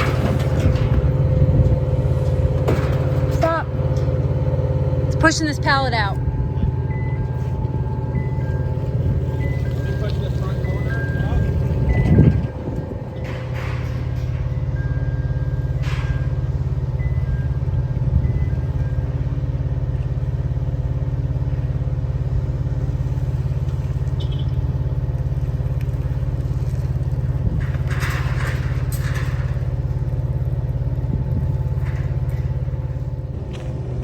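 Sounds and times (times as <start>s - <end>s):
engine humming: 0.0s - 34.0s
short clatters: 23.7s - 34.0s.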